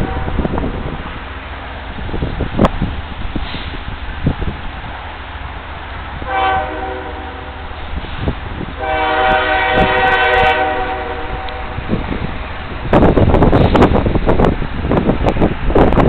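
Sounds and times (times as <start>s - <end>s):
locomotive air horn: 0.0s - 0.6s, 6.2s - 7.7s, 8.8s - 11.9s.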